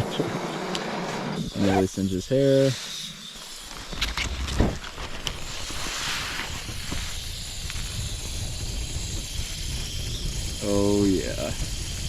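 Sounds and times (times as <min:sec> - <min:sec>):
stove burner hissing: 0:04.9 - 0:12.0.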